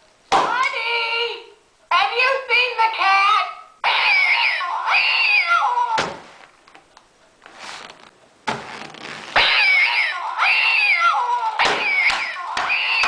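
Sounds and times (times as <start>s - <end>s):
shuffling noise: 6.2s - 9.4s.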